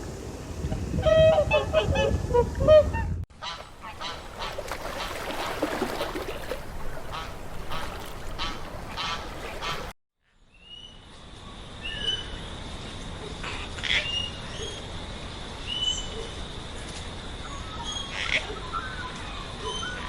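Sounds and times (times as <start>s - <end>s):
waterfowl honking: 1.0s - 9.9s.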